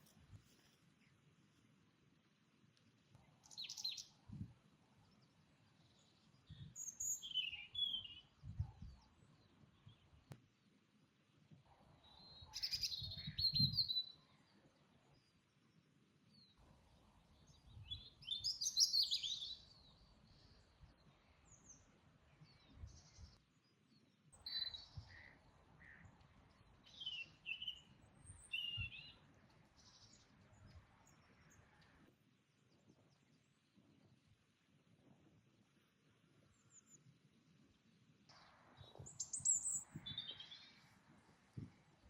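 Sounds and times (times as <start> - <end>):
songbirds chirping and singing: 5.2 - 8.4, 38.8 - 40.9.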